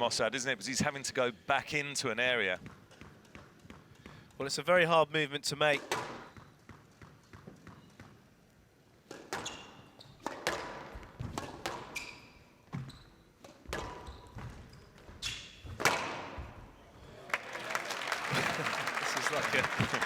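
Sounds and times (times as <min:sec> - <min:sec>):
squash ball striking rackets and walls: 0:02.6 - 0:04.2, 0:05.8 - 0:08.2, 0:09.0 - 0:16.6
court shoes squeaking: 0:05.9 - 0:08.3, 0:09.1 - 0:17.1.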